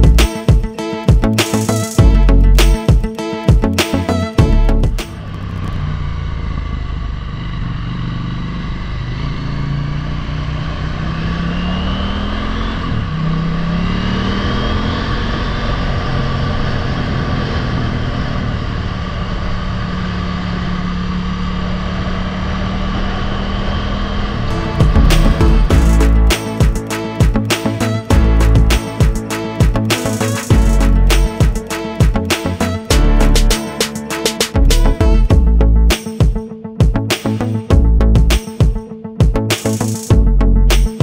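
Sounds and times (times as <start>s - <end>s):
motorcycle engine accelerating: 3.6s - 41.0s
steady rushing noise: 24.0s - 27.6s.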